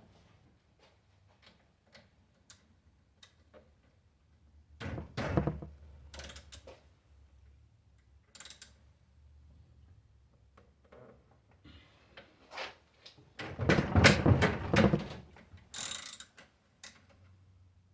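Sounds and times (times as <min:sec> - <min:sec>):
bicycle parts clicking and knocking: 0:06.1 - 0:06.8, 0:08.3 - 0:08.8, 0:15.6 - 0:17.3.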